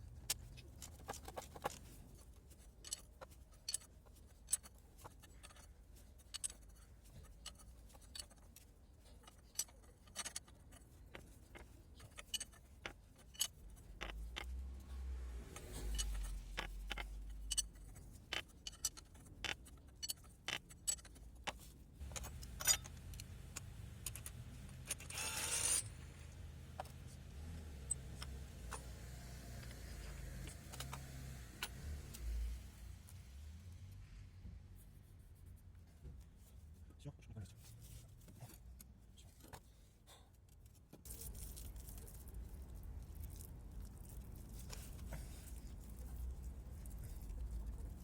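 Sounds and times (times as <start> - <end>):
metal tools clinking: 15.6 - 19.2, 22.0 - 25.9.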